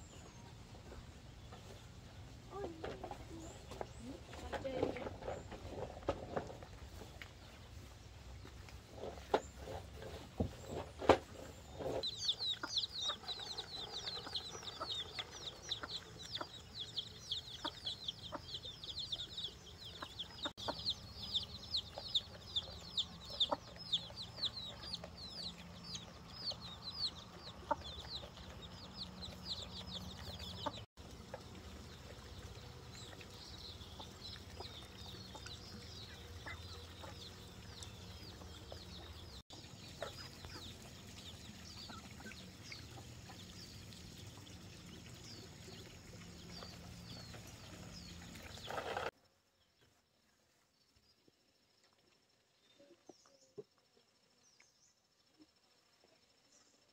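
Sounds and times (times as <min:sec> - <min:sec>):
chicks cheeping: 0:08.4 - 0:49.1.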